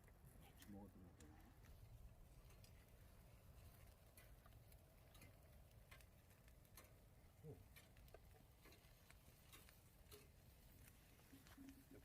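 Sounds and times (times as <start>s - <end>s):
faint clicks and ticks: 0.0s - 12.0s.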